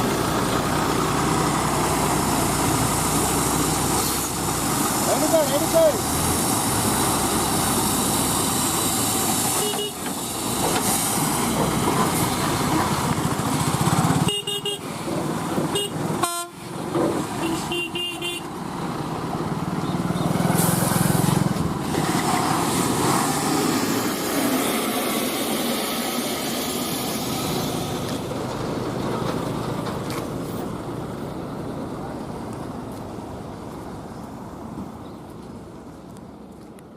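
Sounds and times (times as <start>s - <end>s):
outdoor road noise: 0.0s - 36.9s
vehicle horns honking: 9.6s - 10.1s, 14.2s - 14.9s, 15.7s - 16.6s, 17.4s - 18.5s.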